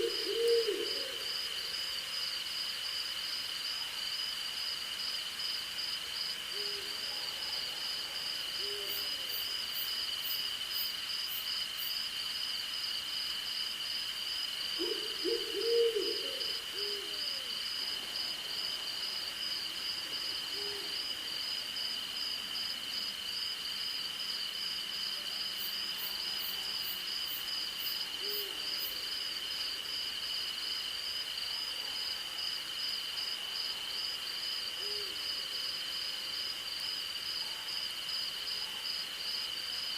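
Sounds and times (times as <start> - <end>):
owl hooting: 0.0 - 1.2, 14.8 - 17.5.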